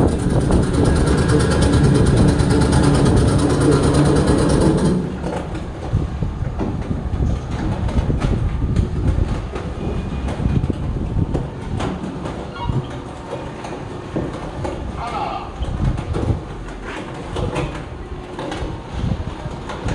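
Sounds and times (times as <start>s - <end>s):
motor hum: 0.0s - 9.2s
pump machinery rattling clatter: 0.0s - 19.9s.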